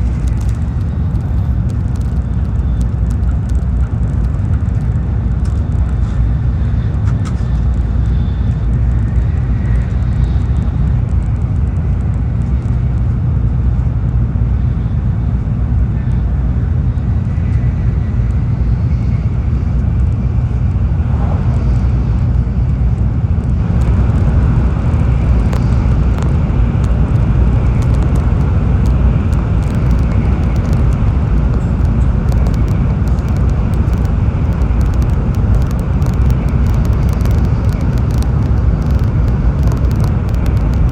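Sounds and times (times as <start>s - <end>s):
train wheels rumbling: 19.9s - 40.9s.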